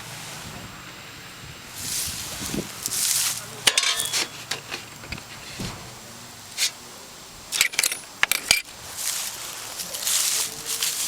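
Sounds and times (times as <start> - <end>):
rustling: 1.8 - 6.9, 8.6 - 11.0.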